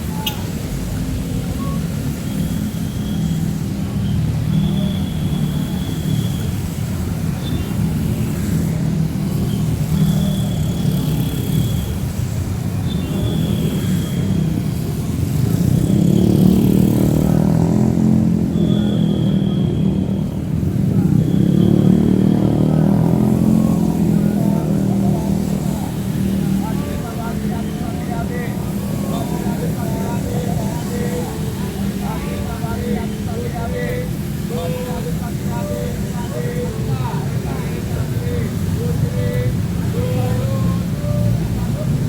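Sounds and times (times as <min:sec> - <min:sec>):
traffic engines rumbling: 0:00.0 - 0:42.0
heavy rain hissing: 0:23.2 - 0:42.0.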